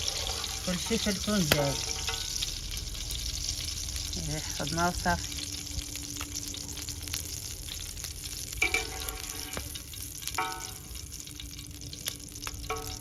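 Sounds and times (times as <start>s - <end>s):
food sizzling over wood fire: 0.0s - 13.0s
sharp fire pops: 1.4s - 1.9s, 9.4s - 10.4s.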